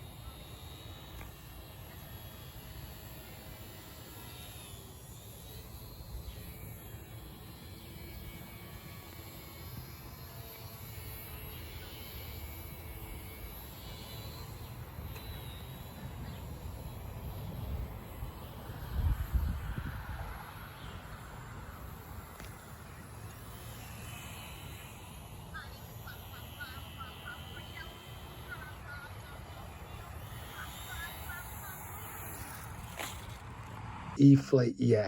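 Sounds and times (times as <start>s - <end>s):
model airplane motor whining: 0.0s - 33.8s
wind on microphone: 16.1s - 20.5s.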